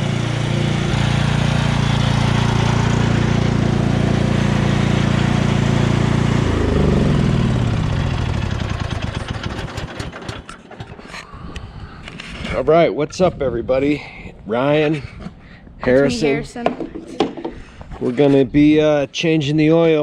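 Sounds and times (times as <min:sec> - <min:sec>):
lawn tractor engine idling: 0:00.0 - 0:11.2.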